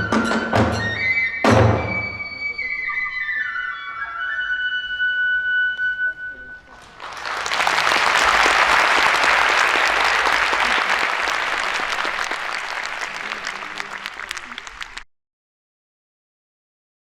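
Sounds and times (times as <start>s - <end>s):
audience applauding: 6.8s - 15.1s.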